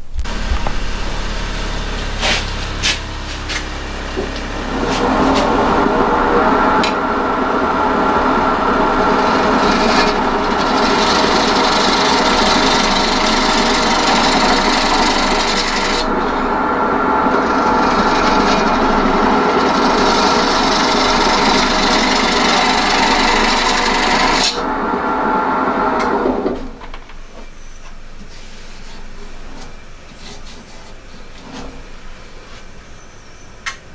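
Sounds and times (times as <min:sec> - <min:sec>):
lathe tool scraping wood: 0:00.3 - 0:24.7
lathe motor hum: 0:00.3 - 0:27.0.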